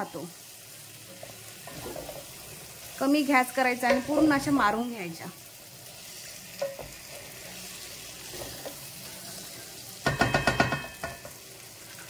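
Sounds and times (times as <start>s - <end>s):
prawns sizzling in paste: 0.0s - 10.2s
spoon knocking and scraping pan: 1.0s - 2.5s, 3.8s - 4.8s, 6.6s - 7.4s, 8.2s - 12.0s.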